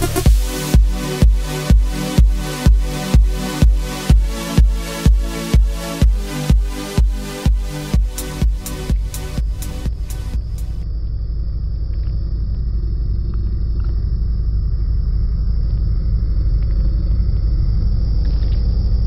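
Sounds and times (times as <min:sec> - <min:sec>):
music: 0:00.0 - 0:10.9
loud low rumble: 0:00.0 - 0:19.0.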